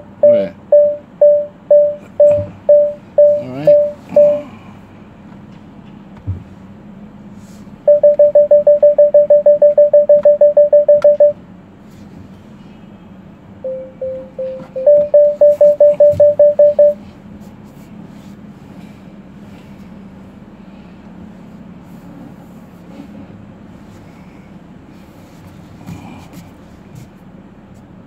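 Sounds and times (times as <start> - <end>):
parking sensor beeping: 0.0 - 4.5, 7.8 - 11.4, 13.6 - 17.0
car engine hum: 0.0 - 28.0.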